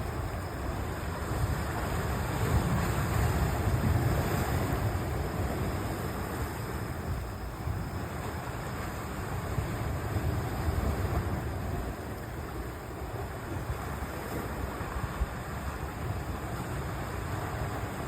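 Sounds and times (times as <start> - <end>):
sea surf: 0.0 - 18.0
wind on microphone: 0.0 - 18.0.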